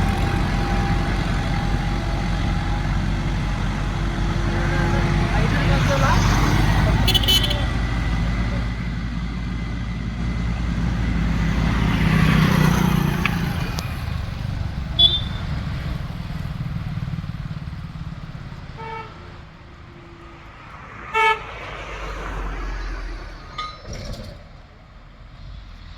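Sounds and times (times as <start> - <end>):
tractor diesel engine under load: 0.0 - 25.9
vehicle horn toots: 7.0 - 7.8, 15.0 - 15.6, 18.8 - 19.4, 21.1 - 21.5.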